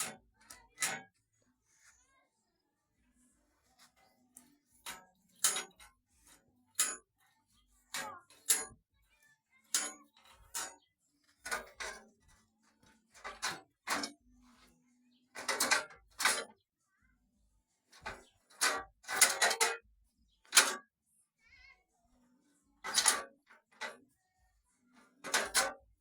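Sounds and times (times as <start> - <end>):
metallic clinks and knocks: 4.8 - 6.0, 6.7 - 7.2, 9.7 - 14.2, 15.4 - 16.6, 18.0 - 19.8, 22.8 - 24.0, 25.2 - 26.0.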